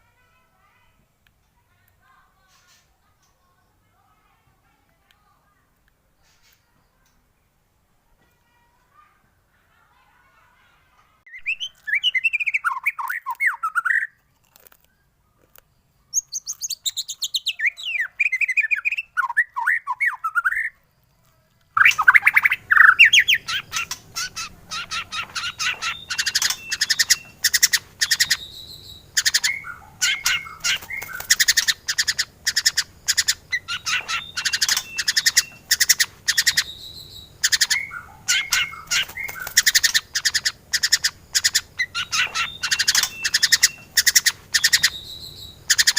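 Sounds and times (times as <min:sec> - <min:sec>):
bird singing whistled phrases: 0:11.3 - 0:14.2, 0:16.1 - 0:20.8, 0:21.8 - 0:45.9
bird chattering and clicking: 0:11.5 - 0:19.0, 0:21.6 - 0:45.9.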